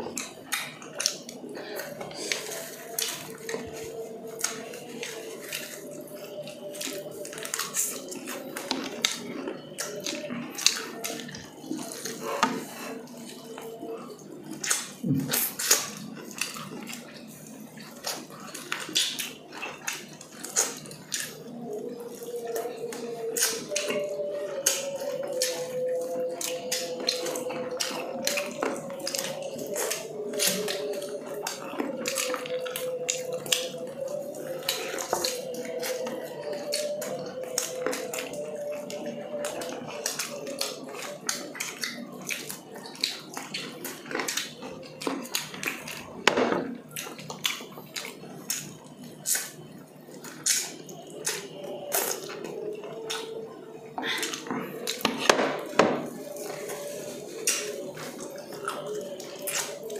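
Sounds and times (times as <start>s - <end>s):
faint steady hum: 0.0s - 59.9s
wet chewing and lip smacking: 0.0s - 59.9s.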